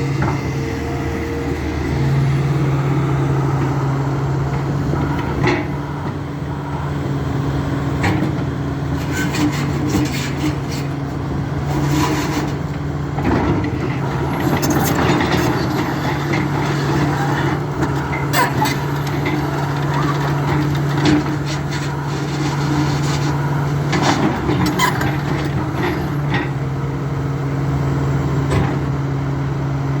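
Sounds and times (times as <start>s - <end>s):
excavator diesel engine running: 0.0s - 30.0s
clanks and knocks: 13.2s - 26.6s.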